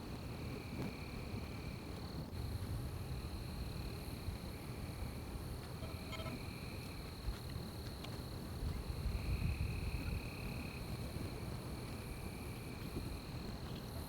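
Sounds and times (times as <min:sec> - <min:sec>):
high insect trill: 0:02.4 - 0:07.4
lower insect trill: 0:03.0 - 0:07.1.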